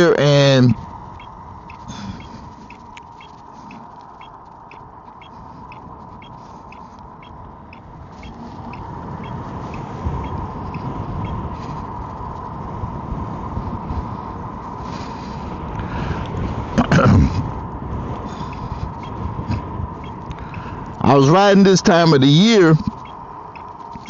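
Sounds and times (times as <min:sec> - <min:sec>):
wind rumble on microphone: 0:00.0 - 0:24.0
electric scooter motor whine: 0:00.8 - 0:16.8, 0:17.4 - 0:21.0.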